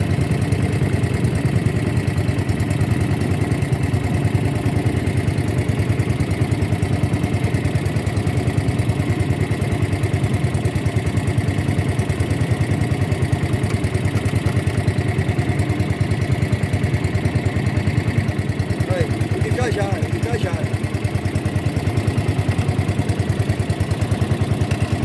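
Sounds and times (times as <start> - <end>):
boat motor running: 0.0 - 25.0.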